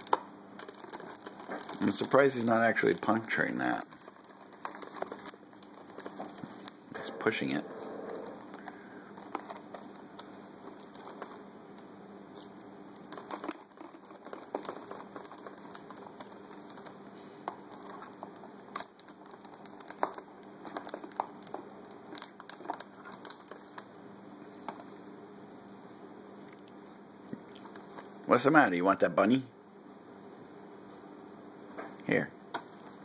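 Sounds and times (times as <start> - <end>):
beak tapping plastic wrapper: 0.0 - 23.9, 24.5 - 25.0, 32.5 - 33.0.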